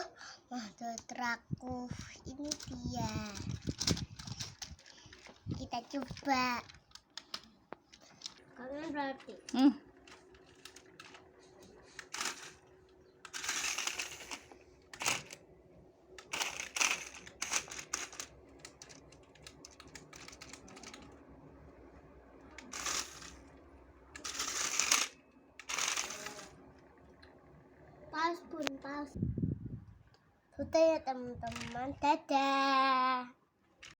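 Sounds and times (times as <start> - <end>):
toy truck clattering: 2.0 - 11.3, 12.0 - 15.4, 16.2 - 21.2, 22.6 - 23.6, 24.2 - 26.6, 31.5 - 31.9.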